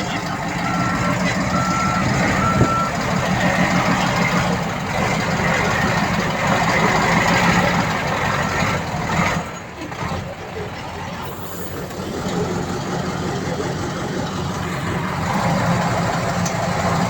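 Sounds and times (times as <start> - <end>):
reversing alarm beeping: 0.0 - 3.2
diesel engine running: 0.0 - 17.0.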